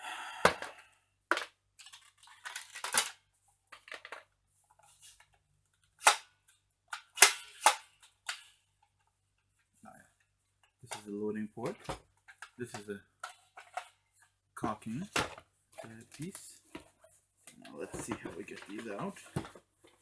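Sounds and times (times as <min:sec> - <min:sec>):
plastic toy blaster clicks: 0:06.0 - 0:06.3.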